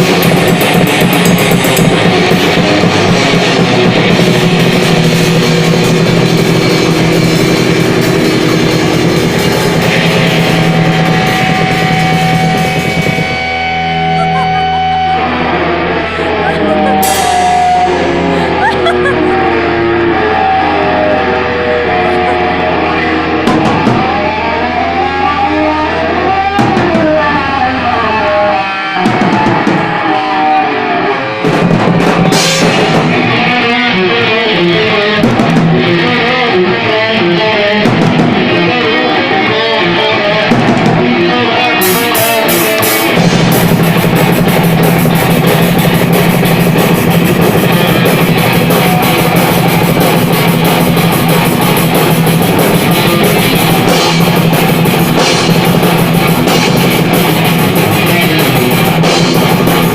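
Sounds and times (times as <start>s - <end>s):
heavy cymbals: 0.0s - 18.7s
heavy metal band playing: 0.0s - 59.9s.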